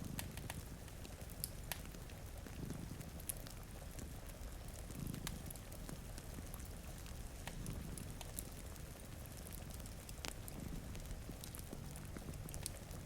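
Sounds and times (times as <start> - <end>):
wood fire crackling: 0.0 - 13.0
cat purring: 4.7 - 6.7, 7.5 - 8.6, 10.3 - 13.0.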